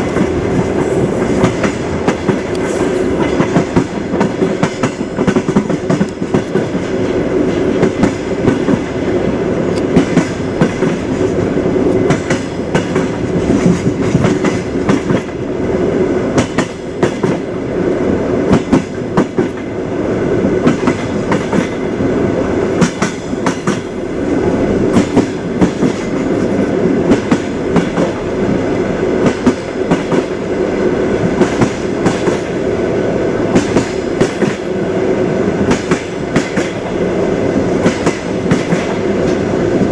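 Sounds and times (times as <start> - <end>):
train wheels clattering on rails: 0.0 - 15.6, 16.2 - 19.8, 20.4 - 32.8, 33.5 - 39.9.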